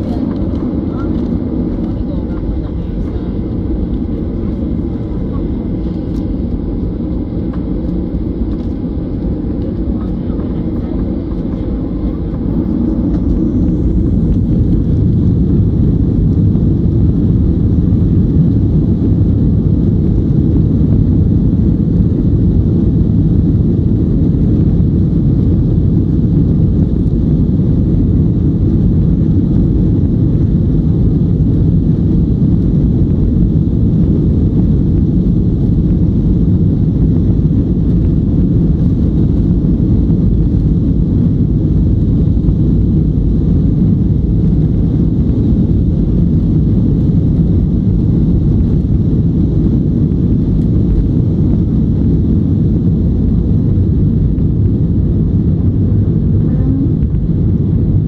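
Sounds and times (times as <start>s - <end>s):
jet engine rumble inside cabin: 0.0s - 58.0s
airflow noise: 32.0s - 58.0s.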